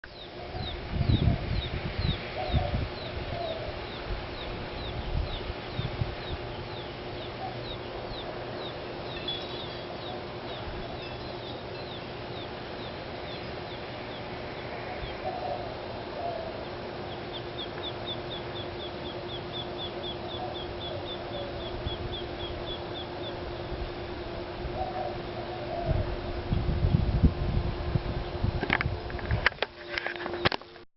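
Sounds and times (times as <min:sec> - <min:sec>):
steady low hum: 0:00.0 - 0:30.8
quail chicks peeping: 0:00.1 - 0:23.7.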